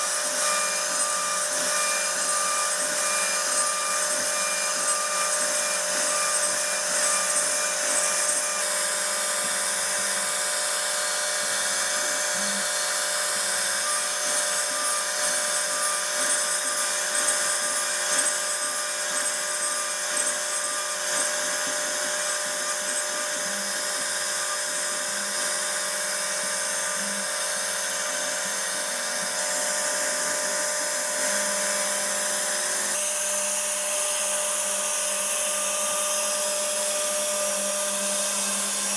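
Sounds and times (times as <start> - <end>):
cnc router spindle whining: 0.0 - 38.9.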